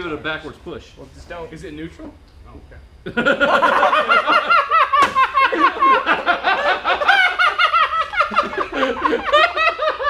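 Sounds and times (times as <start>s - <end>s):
people laughing: 3.1s - 10.0s.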